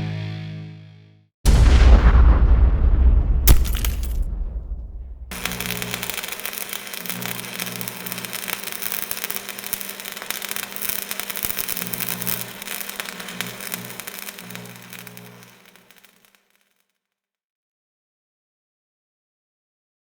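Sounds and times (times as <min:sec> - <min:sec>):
crackling static: 0:03.5 - 0:16.5.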